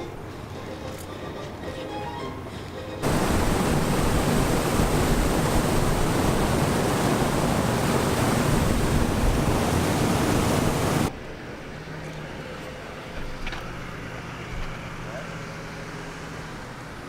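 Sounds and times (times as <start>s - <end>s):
wind buffeting microphone: 3.0s - 11.1s.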